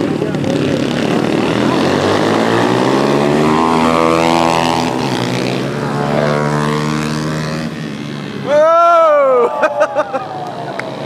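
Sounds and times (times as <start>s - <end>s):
motorcycle engines revving past: 0.0s - 11.0s.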